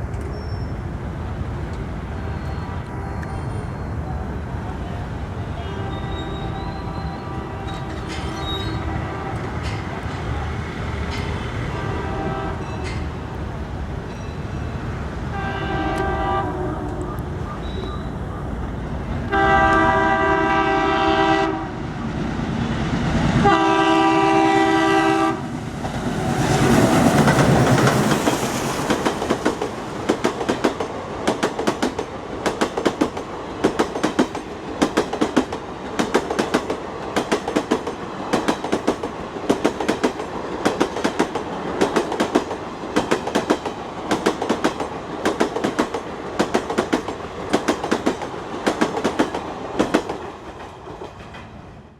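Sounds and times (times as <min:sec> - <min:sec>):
diesel locomotive engine rumble: 0:00.0 - 0:51.9
locomotive horn blasts: 0:02.1 - 0:03.6, 0:05.4 - 0:09.6, 0:11.6 - 0:12.9, 0:15.3 - 0:18.2, 0:19.2 - 0:21.8, 0:23.4 - 0:25.5
train wheels clickety-clack: 0:06.1 - 0:13.3, 0:25.8 - 0:51.7.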